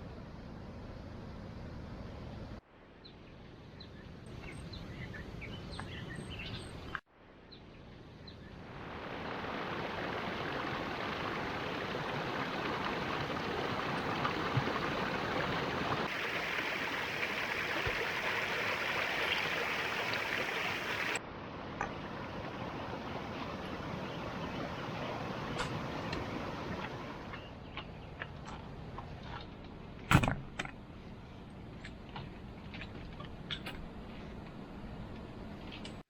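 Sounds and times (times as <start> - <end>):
bird chirps: 3.0 - 8.6
faint hiss: 8.6 - 21.2
flowing water rushing: 8.7 - 27.3.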